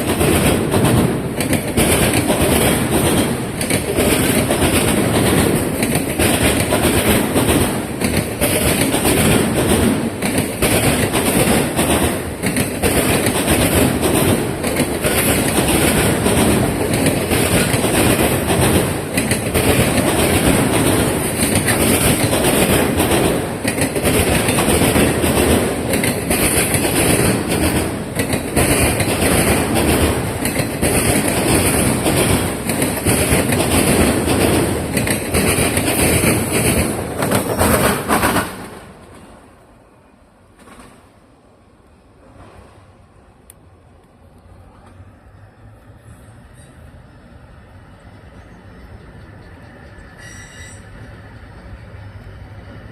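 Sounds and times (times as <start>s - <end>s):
train wheels clattering over crossing: 0.0s - 39.5s.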